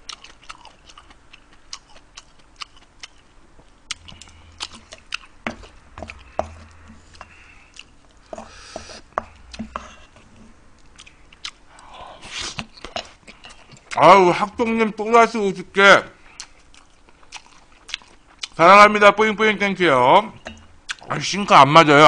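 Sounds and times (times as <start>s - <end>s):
chewing and lip-smacking: 0.0s - 9.8s, 10.8s - 14.0s, 16.3s - 18.6s, 20.8s - 21.1s.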